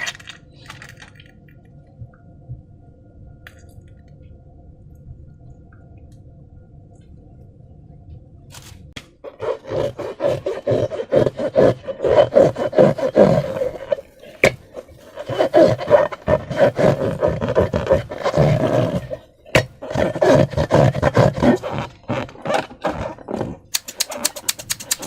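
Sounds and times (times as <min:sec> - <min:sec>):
rubbery squeaks: 0:19.8 - 0:24.5.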